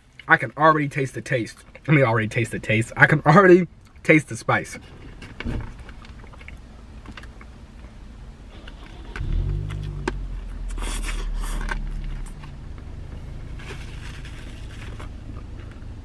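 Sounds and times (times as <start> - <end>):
low steady hum: 0.0 - 16.0
crunchy chewing: 5.2 - 8.0, 8.6 - 12.9.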